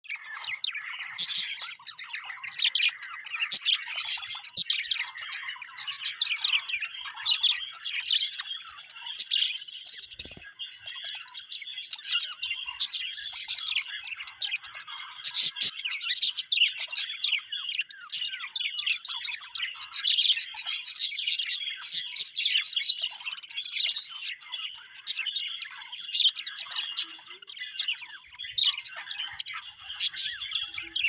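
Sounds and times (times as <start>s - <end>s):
birds chirping and squawking: 0.0s - 31.0s.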